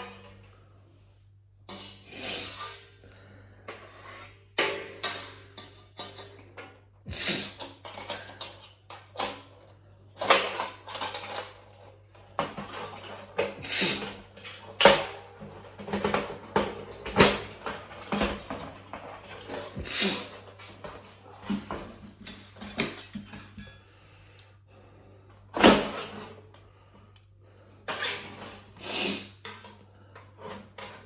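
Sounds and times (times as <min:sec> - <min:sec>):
sheet metal parts clanking: 0:21.5 - 0:24.5.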